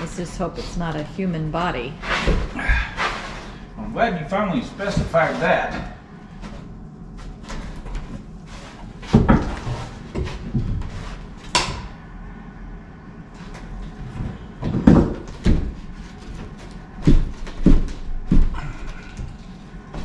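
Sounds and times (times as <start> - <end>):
wooden knocks and clunks: 9.0 - 11.8, 14.1 - 20.0.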